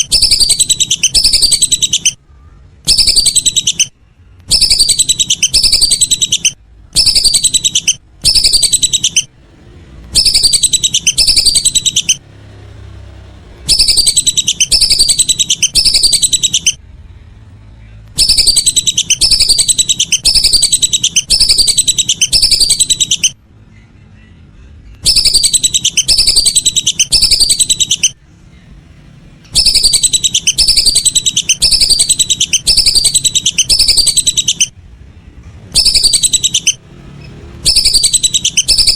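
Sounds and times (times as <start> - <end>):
ducks whistling calls: 0.0 - 2.2, 2.9 - 3.9, 4.5 - 9.3, 10.1 - 12.3, 13.6 - 16.8, 18.1 - 23.4, 25.0 - 28.2, 29.5 - 34.8, 35.7 - 36.8, 37.6 - 38.9.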